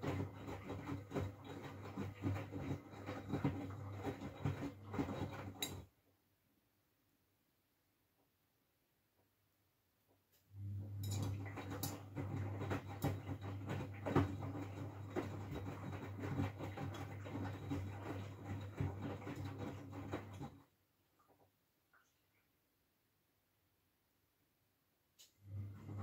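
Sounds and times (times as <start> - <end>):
laundry clattering in drum: 0.0 - 5.8, 11.1 - 20.6
washing machine motor hum: 0.0 - 5.9, 10.5 - 20.7, 25.3 - 26.0.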